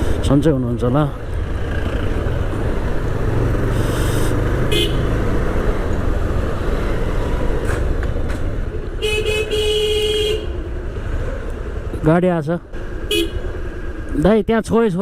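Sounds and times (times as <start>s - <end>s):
vehicle horn honking: 4.7s - 5.2s, 9.0s - 10.6s, 13.1s - 13.5s.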